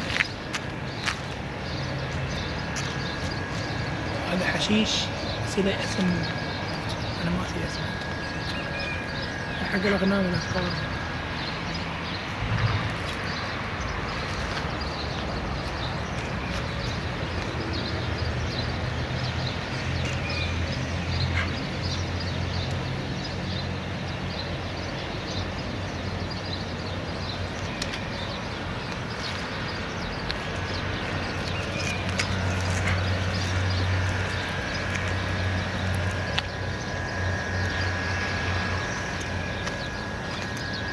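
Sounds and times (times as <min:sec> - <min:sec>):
steady low rumble: 0:00.0 - 0:18.9, 0:28.6 - 0:40.9
small birds chirping: 0:00.0 - 0:40.9.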